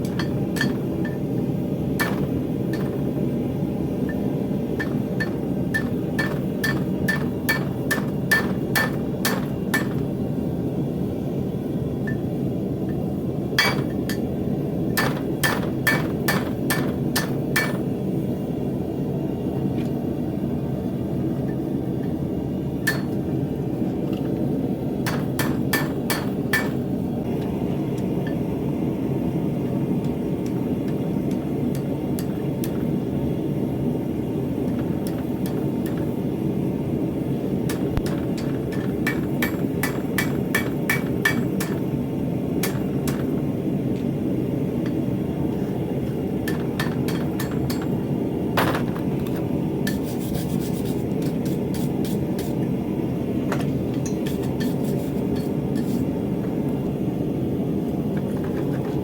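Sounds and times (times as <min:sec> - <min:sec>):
hammer striking steel on anvil: 0:00.0 - 0:01.3, 0:02.0 - 0:03.1, 0:04.1 - 0:10.0, 0:13.6 - 0:14.3, 0:15.0 - 0:17.8, 0:22.8 - 0:23.3, 0:25.0 - 0:26.8, 0:37.7 - 0:41.8, 0:42.6 - 0:43.3, 0:46.4 - 0:48.0, 0:54.0 - 0:56.0.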